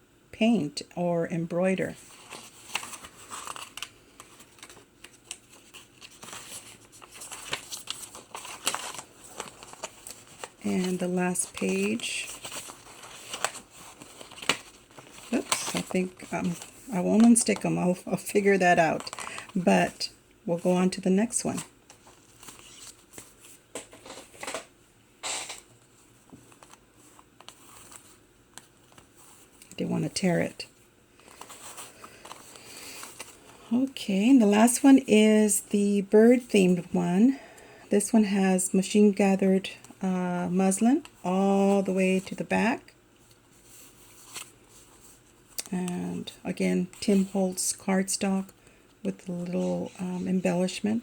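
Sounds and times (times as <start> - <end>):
paper crinkling: 2.0 - 19.6, 21.6 - 24.6, 25.5 - 30.2, 31.2 - 33.7, 43.2 - 45.7
paper pages being turned: 2.0 - 19.6, 21.6 - 30.2, 31.2 - 33.6, 43.2 - 45.8.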